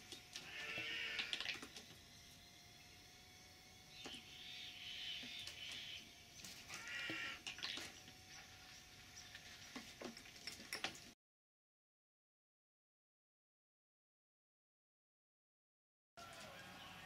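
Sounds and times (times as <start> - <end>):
bird calls: 3.9 - 9.9.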